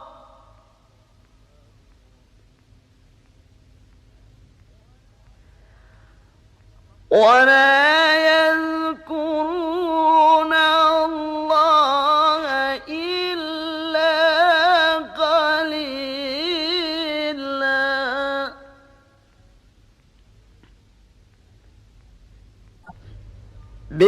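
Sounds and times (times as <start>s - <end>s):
man breathing: 5.5s - 6.4s
man reciting melodically: 6.9s - 19.0s.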